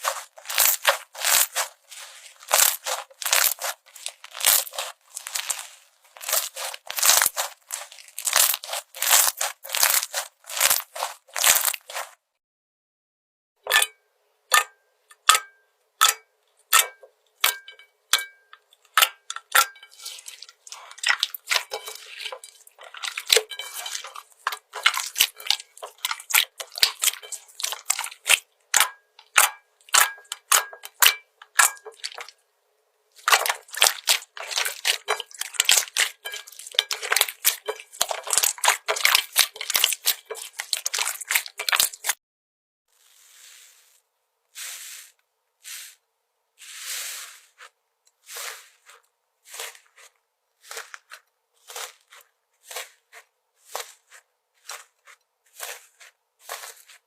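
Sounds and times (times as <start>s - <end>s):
slime clicking and crackling: 0.0s - 12.2s, 18.9s - 32.3s, 33.2s - 42.2s, 48.3s - 57.0s.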